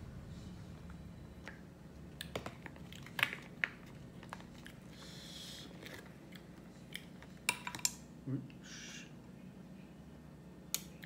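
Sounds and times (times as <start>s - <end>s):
person chewing: 2.2s - 7.4s.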